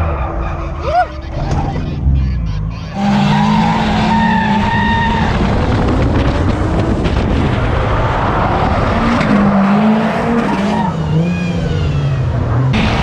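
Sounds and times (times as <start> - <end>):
tyres skidding: 0.0 - 13.0
car engine at high revs: 3.0 - 13.0.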